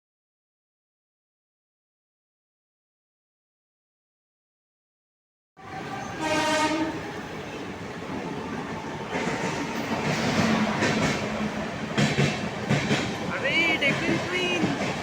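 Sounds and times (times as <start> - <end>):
train horn blast: 6.1 - 7.0
train running rumble: 6.1 - 15.0.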